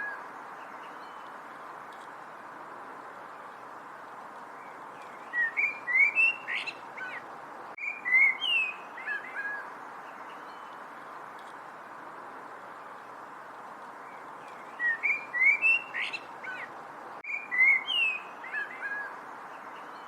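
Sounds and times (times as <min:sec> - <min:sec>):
steady background hiss: 0:00.0 - 0:20.0
songbird singing whistled notes: 0:04.6 - 0:07.2, 0:07.8 - 0:10.8, 0:14.0 - 0:20.0.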